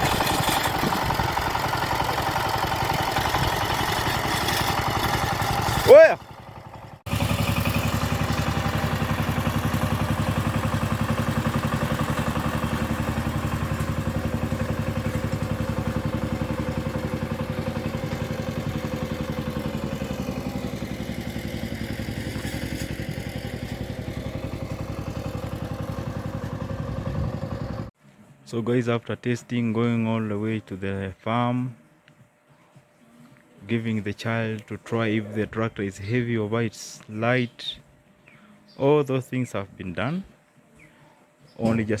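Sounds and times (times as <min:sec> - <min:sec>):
walking tractor engine chugging: 0:00.0 - 0:27.9.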